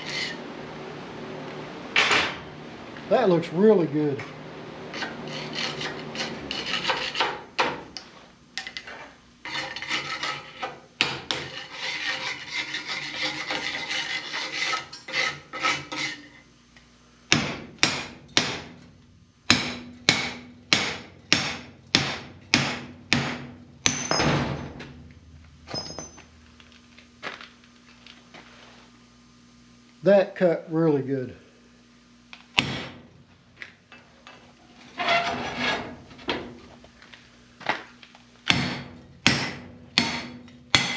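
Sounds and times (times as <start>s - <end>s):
scraping on steel: 0.0s - 0.5s, 4.8s - 7.6s, 8.8s - 16.5s, 34.3s - 36.6s.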